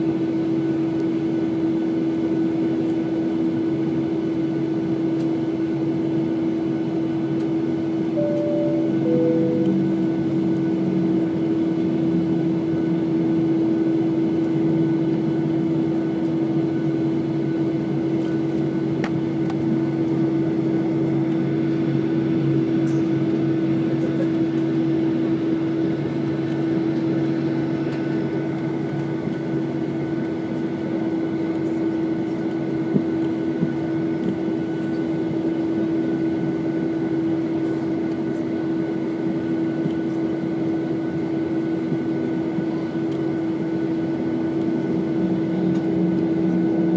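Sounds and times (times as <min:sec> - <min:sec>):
airliner cabin engine drone: 0:00.0 - 0:46.9
high whines: 0:08.2 - 0:13.3.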